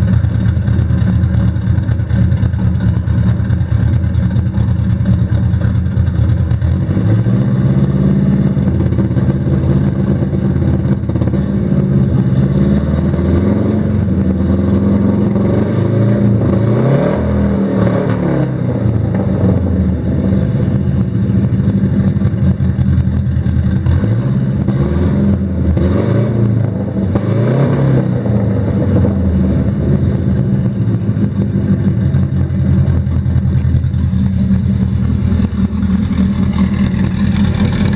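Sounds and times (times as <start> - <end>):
car engine idling and revving: 0.0 - 37.9.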